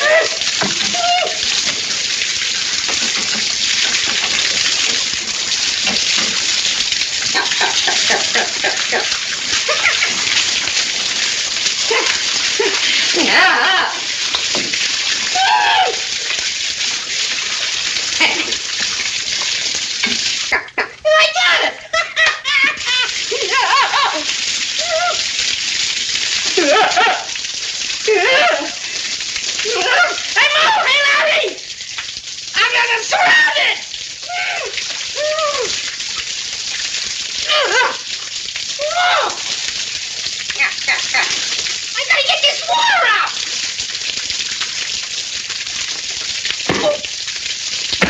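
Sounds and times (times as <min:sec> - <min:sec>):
spraying water hiss: 0:00.0 - 0:20.8
water gushing from pipes: 0:00.0 - 0:48.0.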